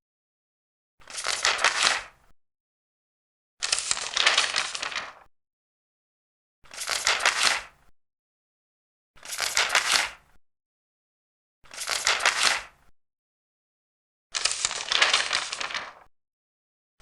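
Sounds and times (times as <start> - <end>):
paper pages turning: 1.1 - 2.1, 3.6 - 5.3, 6.7 - 7.7, 9.2 - 10.2, 11.7 - 12.7, 14.4 - 16.1.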